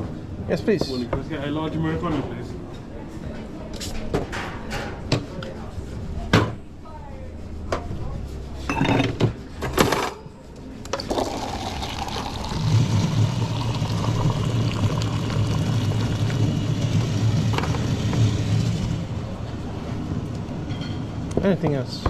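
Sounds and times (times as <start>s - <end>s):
espresso machine pump humming: 11.0s - 19.1s.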